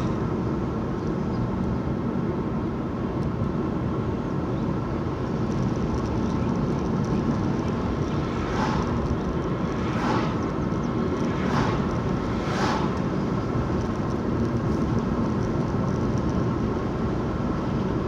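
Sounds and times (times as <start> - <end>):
vehicle road and engine noise: 0.0 - 18.0.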